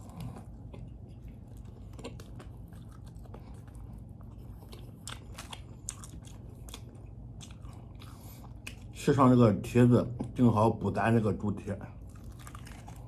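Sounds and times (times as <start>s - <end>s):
person chewing: 0.0s - 9.0s, 12.0s - 13.0s.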